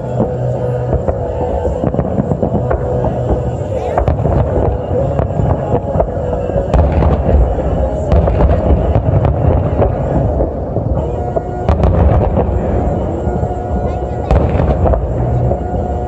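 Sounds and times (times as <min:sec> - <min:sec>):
fireworks booming and crackling: 0:00.0 - 0:16.0.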